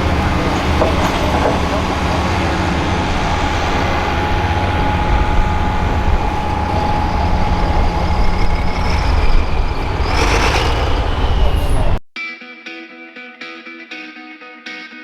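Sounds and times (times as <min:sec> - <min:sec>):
high engine whine: 0:00.0 - 0:12.0
tractor engine running: 0:00.0 - 0:12.0.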